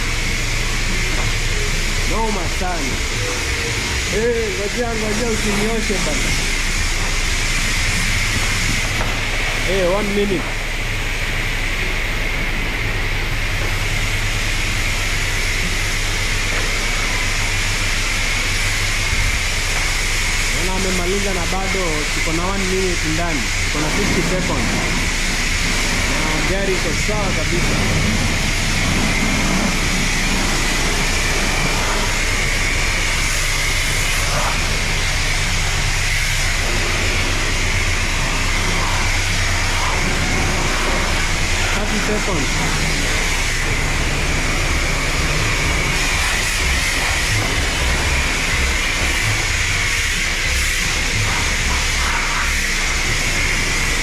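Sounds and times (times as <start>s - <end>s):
pressure washer spraying water: 0.0s - 54.0s
pump motor humming: 0.0s - 54.0s
steady whine: 0.0s - 54.0s.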